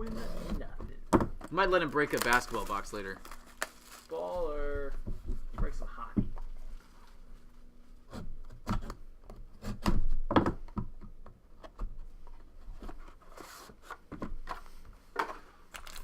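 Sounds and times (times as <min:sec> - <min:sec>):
cardboard and plastic knocks: 0:00.6 - 0:01.6, 0:09.8 - 0:11.1
tearing rustle: 0:02.0 - 0:04.4, 0:15.7 - 0:16.0.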